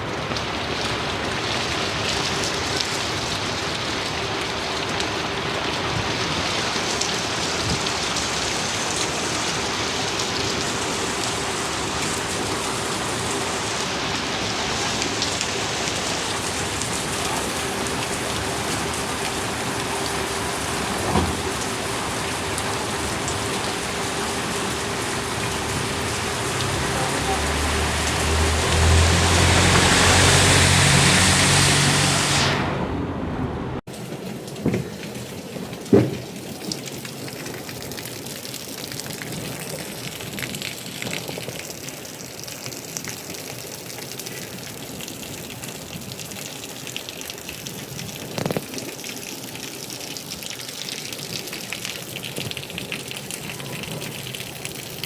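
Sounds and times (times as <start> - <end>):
heavy rain falling: 0.0 - 55.0
water drips: 15.0 - 31.0.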